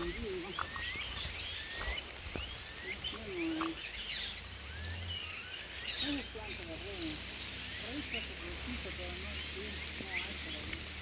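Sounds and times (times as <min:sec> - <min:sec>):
birds chirping: 0:00.0 - 0:11.0
lower curving bird calls: 0:00.0 - 0:11.0.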